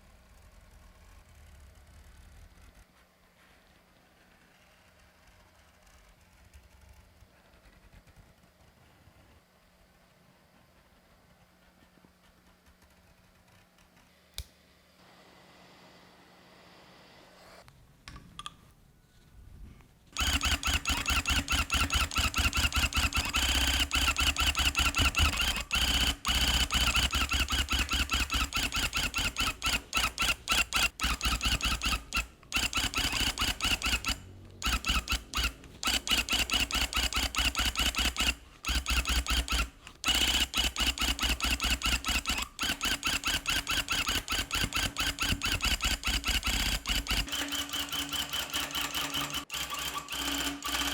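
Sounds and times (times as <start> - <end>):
electric tufting gun running: 20.2 - 48.5.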